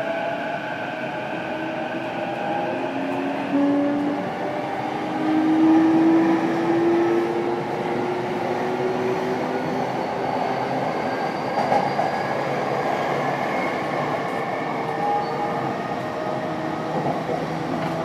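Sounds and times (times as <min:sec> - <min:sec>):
wheels rumbling on rail: 0:13.5 - 0:18.0.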